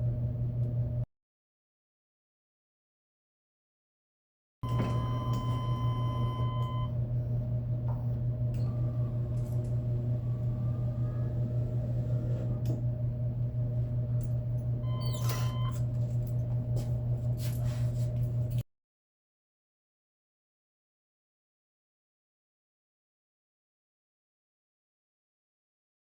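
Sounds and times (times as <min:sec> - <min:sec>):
low machine hum: 0:00.0 - 0:01.1, 0:04.6 - 0:18.6
high electronic beep: 0:14.8 - 0:15.8.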